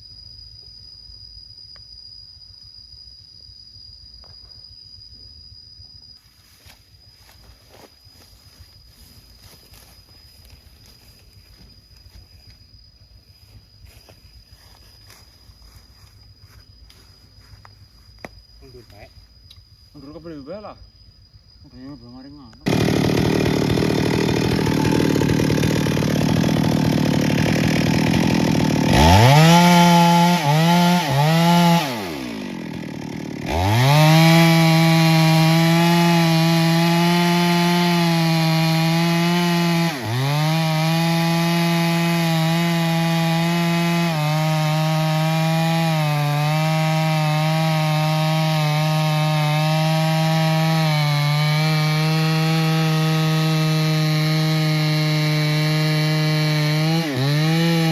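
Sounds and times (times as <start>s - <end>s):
chainsaw cutting wood: 22.6s - 57.9s.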